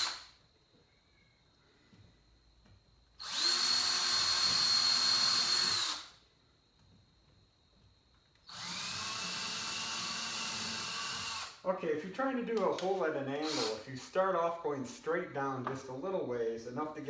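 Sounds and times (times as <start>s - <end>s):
electric drill boring into wood: 0.0s - 0.3s, 3.2s - 6.1s, 8.5s - 11.6s, 13.4s - 13.8s.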